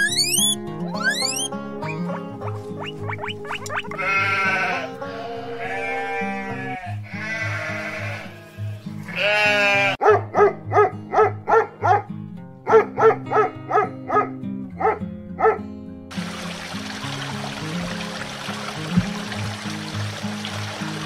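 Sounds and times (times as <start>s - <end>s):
background music: 0.0s - 21.0s
animal bleating: 3.7s - 10.0s.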